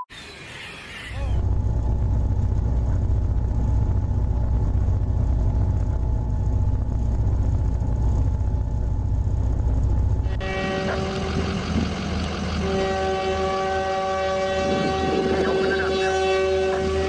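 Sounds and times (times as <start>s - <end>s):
heavy engine rumbling: 0.4s - 17.0s
faint steady whine: 1.2s - 17.0s.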